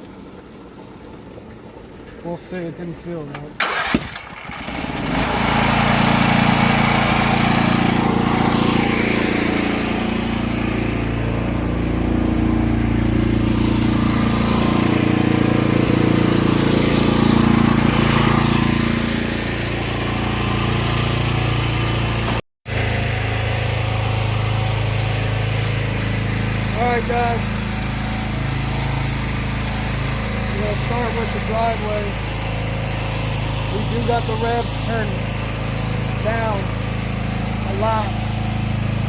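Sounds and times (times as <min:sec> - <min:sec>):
pressure washer engine running: 0:00.2 - 0:39.0.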